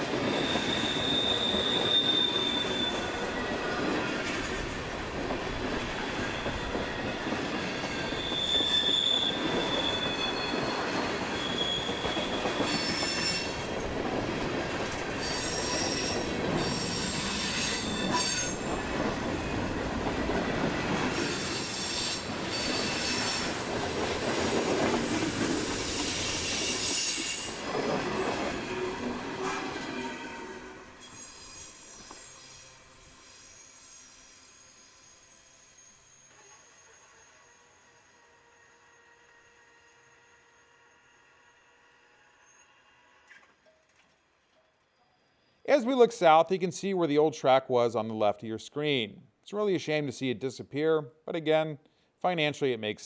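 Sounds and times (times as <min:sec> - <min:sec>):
steel wheel squeal: 0:00.0 - 0:04.4, 0:06.1 - 0:13.9, 0:15.2 - 0:18.8, 0:21.1 - 0:23.6, 0:25.0 - 0:43.3.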